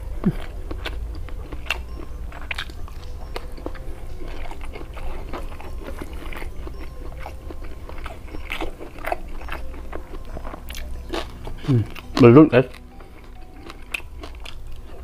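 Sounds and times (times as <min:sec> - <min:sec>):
close chewing with mouth clicks: 0:00.0 - 0:15.0
low hum: 0:00.0 - 0:15.0.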